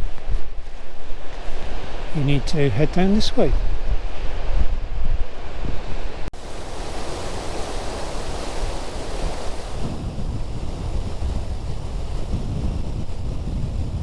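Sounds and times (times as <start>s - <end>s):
wind buffeting microphone: 0.0s - 14.0s
river water rushing: 6.4s - 10.0s.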